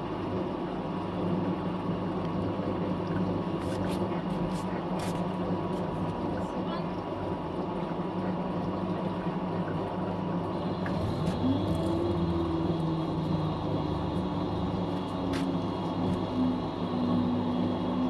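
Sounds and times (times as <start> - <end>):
washing machine humming: 0.0 - 18.0
motor whine rising in pitch: 10.3 - 18.0.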